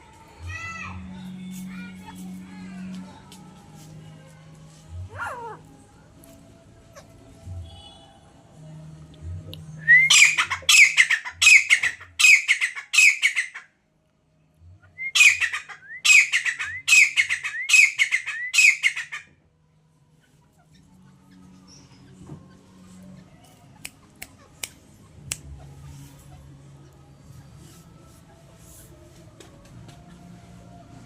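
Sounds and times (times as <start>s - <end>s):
francolin calling harshly: 10.1s - 13.5s, 15.1s - 19.2s.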